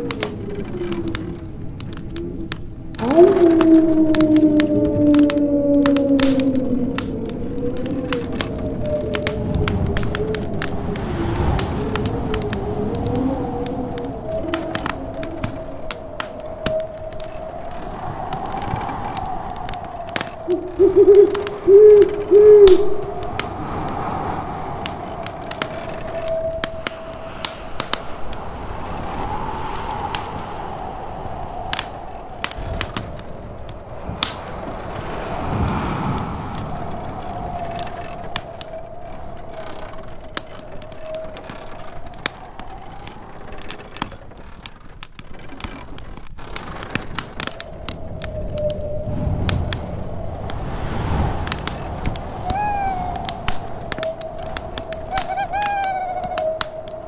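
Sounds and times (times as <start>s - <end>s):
howling snowstorm wind: 0.0s - 57.0s
wood fire crackling and popping: 0.0s - 57.0s
distant thunder rumble: 2.4s - 44.2s, 46.9s - 57.0s
loud hooting call: 20.4s - 23.2s, 52.4s - 54.3s, 54.9s - 56.9s.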